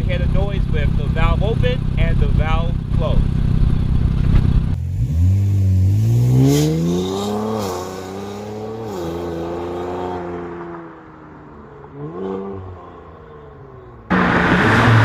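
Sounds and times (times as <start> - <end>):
loud exhaust rumble: 0.0 - 6.1, 14.1 - 15.0
car engine accelerating hard: 0.0 - 13.1, 14.0 - 15.0.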